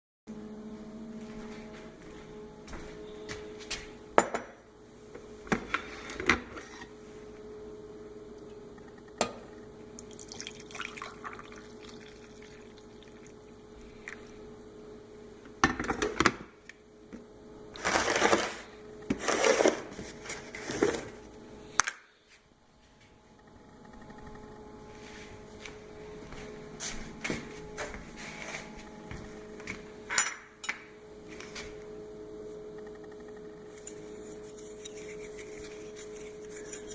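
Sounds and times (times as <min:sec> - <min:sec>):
coffee maker humming: 0:00.3 - 0:21.7.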